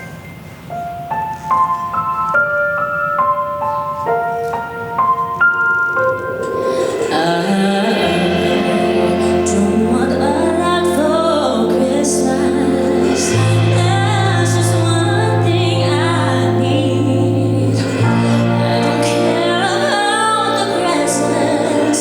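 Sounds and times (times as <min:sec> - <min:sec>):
low sustained accompaniment: 0:00.0 - 0:22.0
piano notes: 0:00.0 - 0:22.0
voices singing a slow song: 0:06.6 - 0:22.0.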